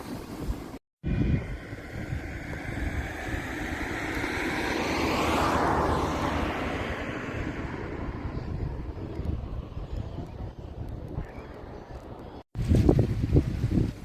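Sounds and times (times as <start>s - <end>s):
vehicle passing by: 1.0s - 10.9s.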